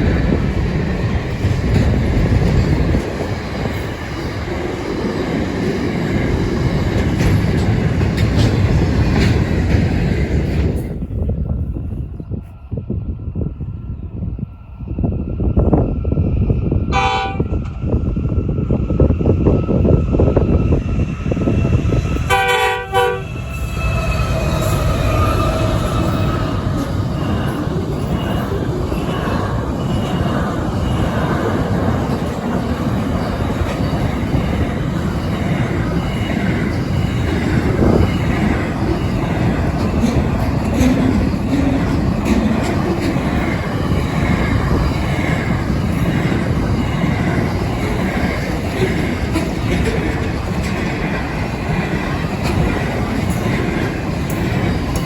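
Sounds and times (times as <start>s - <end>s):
freight train rumbling past: 0.0s - 55.0s
train horn blast: 16.9s - 17.6s, 22.3s - 23.6s.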